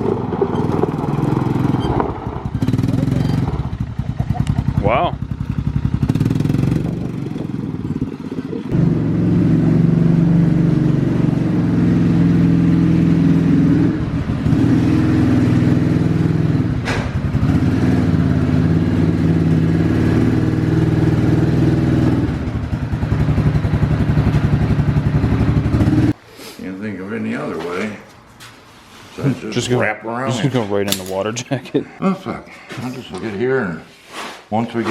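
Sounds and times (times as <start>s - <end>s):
vehicle engine running: 0.0s - 26.2s.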